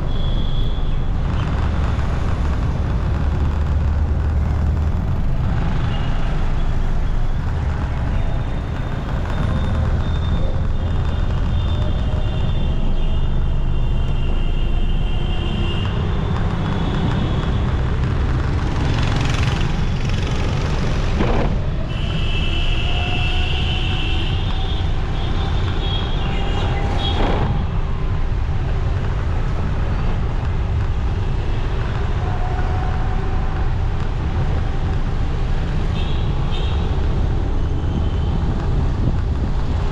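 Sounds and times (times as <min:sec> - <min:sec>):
vehicle horns: 0:00.0 - 0:01.3, 0:09.3 - 0:17.8, 0:21.2 - 0:27.7
motorcycle engine rumble: 0:00.0 - 0:13.6.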